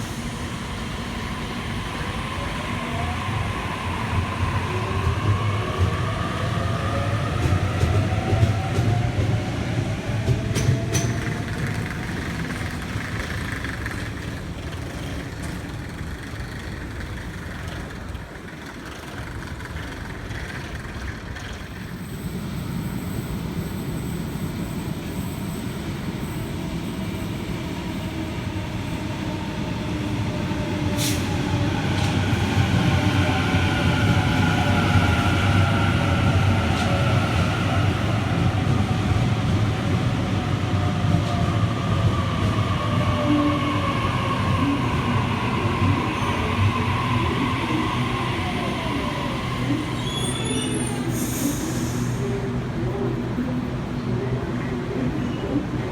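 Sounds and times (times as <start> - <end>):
train rumble: 0.0 - 55.9
train brake whine: 48.9 - 52.4.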